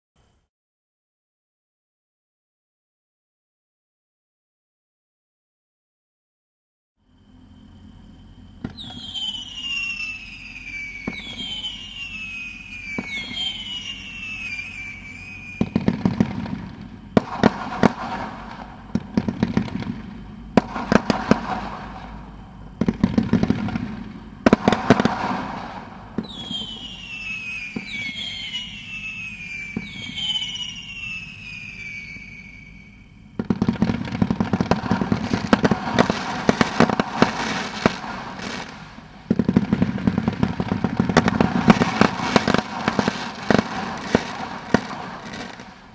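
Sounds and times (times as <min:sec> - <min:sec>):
firework falling whistles: 0:07.0 - 0:45.9
firework pops and crackling: 0:08.6 - 0:32.1, 0:33.4 - 0:45.9.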